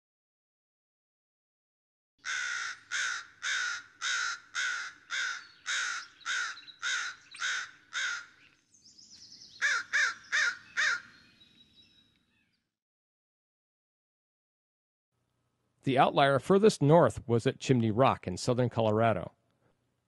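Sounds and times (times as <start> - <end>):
bird calling harshly: 2.2 - 12.6.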